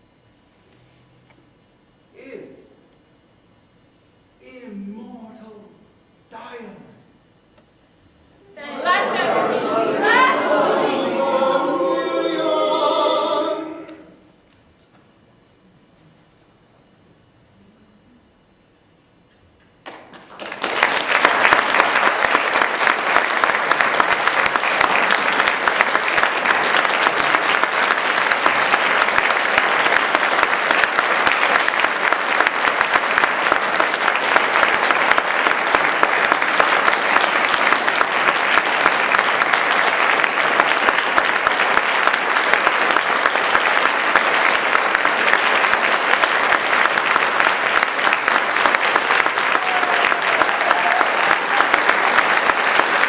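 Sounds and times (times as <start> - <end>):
audience applauding: 8.6 - 14.3, 19.8 - 53.0.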